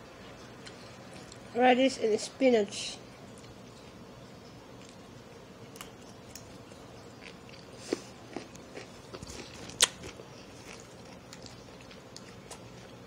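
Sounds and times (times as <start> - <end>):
crisp chewing crunches: 5.6 - 13.0.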